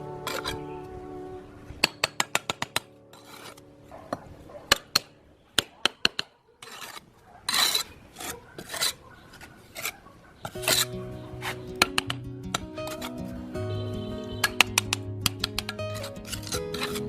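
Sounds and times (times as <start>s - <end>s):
sharp clicks and taps: 1.8s - 2.9s, 11.8s - 12.8s, 14.4s - 15.9s
rasping filing strokes: 6.6s - 11.6s, 15.9s - 17.0s.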